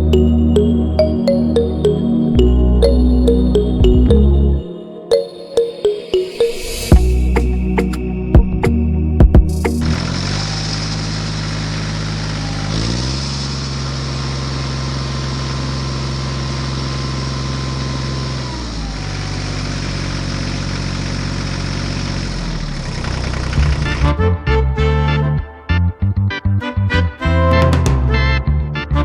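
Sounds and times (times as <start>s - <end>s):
tractor engine running: 9.2s - 24.2s.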